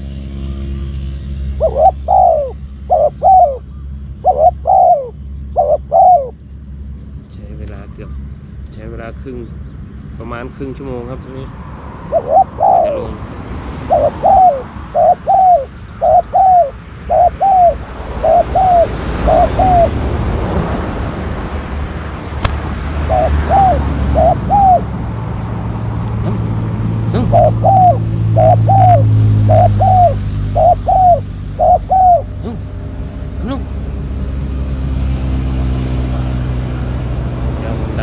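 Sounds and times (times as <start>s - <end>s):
dove cooing: 1.6s - 6.4s, 12.1s - 13.2s, 13.8s - 20.0s, 23.0s - 24.9s, 27.1s - 32.7s
sharp click: 22.4s - 22.6s.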